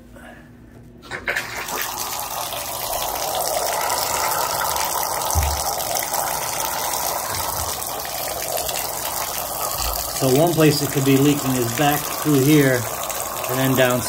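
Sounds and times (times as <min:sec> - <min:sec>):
water gushing into bathtub: 0:01.0 - 0:14.0
low thump: 0:05.3 - 0:05.7.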